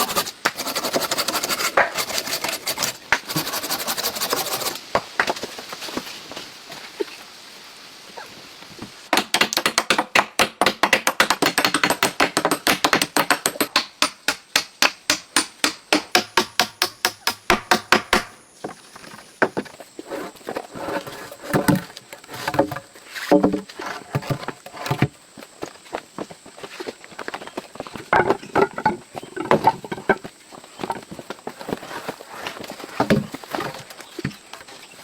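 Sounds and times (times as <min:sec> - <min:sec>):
tool striking wood: 0:09.2 - 0:18.4.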